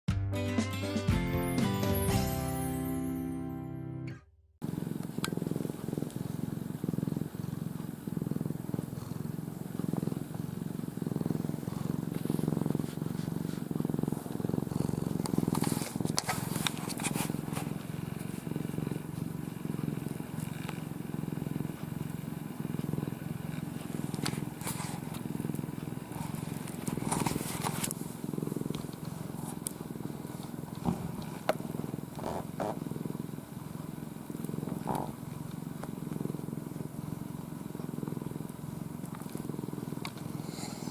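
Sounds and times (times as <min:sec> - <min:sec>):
cat purring: 0:04.6 - 0:40.9
rustling scrapes: 0:11.8 - 0:18.5, 0:26.1 - 0:28.1.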